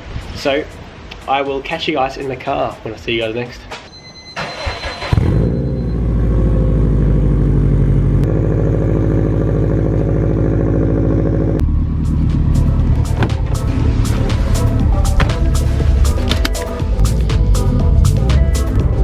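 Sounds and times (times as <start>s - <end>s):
car engine starting and running: 4.4s - 19.0s.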